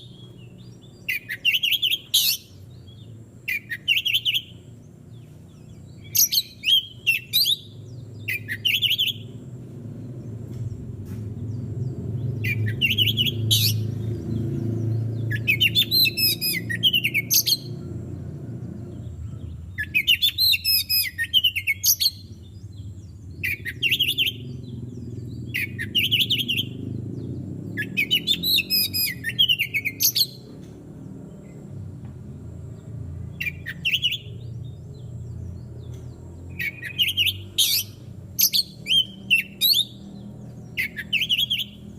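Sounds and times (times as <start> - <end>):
bird singing whistled phrases: 0.0 - 2.6, 3.5 - 4.5, 6.0 - 9.4, 12.4 - 14.0, 15.2 - 17.8, 19.2 - 22.3, 23.4 - 24.6, 25.5 - 26.8, 27.7 - 30.5, 33.4 - 34.5, 36.5 - 40.0, 40.8 - 41.9
low rumble: 22.2 - 28.0.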